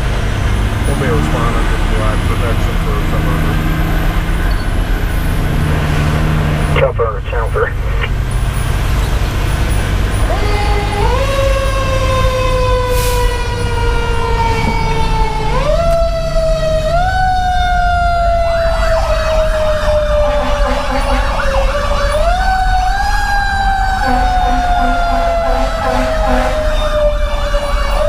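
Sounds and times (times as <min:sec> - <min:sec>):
diesel engine and road rumble: 0:00.0 - 0:28.0
warbling siren: 0:10.0 - 0:28.0
low horn tone blasts: 0:10.1 - 0:28.0.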